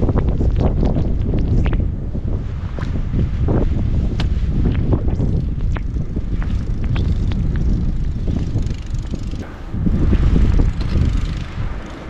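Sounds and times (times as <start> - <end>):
wind buffeting microphone: 0.0 - 12.0
sharp scrapes and crunches: 2.6 - 12.0.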